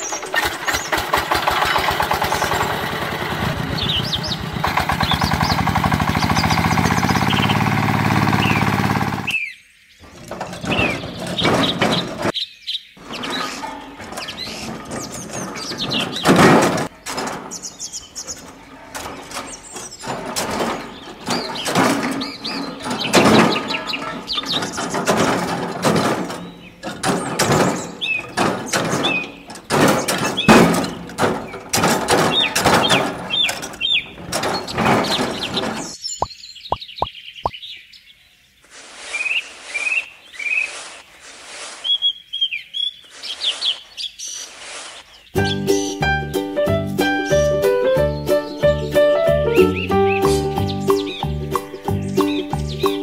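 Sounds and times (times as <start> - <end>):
birds chirping: 0.0 - 53.0
plastic toys clicking and knocking: 13.2 - 36.0.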